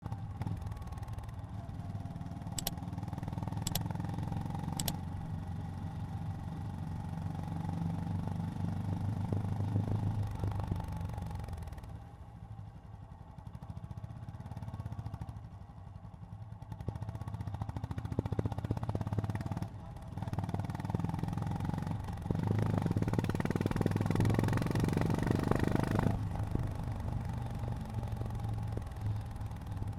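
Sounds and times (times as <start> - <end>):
motorcycle engine running: 0.0 - 29.9
sharp clicks: 2.6 - 2.8, 3.6 - 3.9, 4.8 - 5.0.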